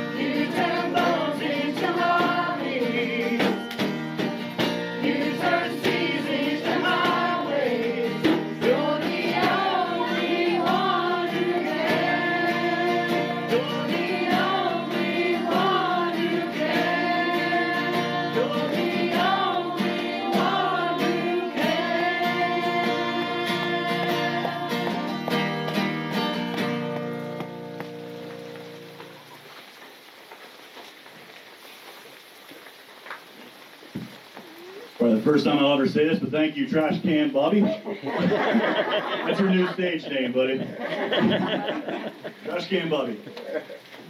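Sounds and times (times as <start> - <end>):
congregation singing: 0.0 - 4.0, 4.6 - 26.8
guitar accompaniment: 0.0 - 29.4.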